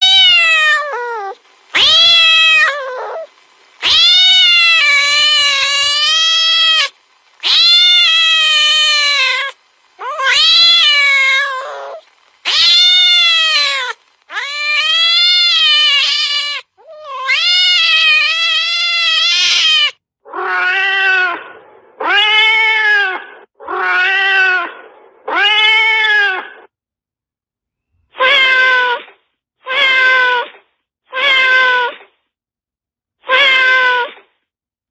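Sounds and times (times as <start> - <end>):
cat yowling: 0.0 - 26.7, 28.2 - 29.1, 29.7 - 30.5, 31.1 - 32.0, 33.2 - 34.2.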